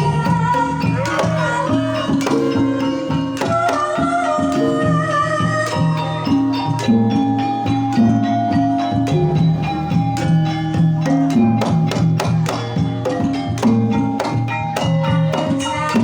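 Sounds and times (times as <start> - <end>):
drum strokes: 0.0 - 16.0
gamelan music: 0.0 - 16.0.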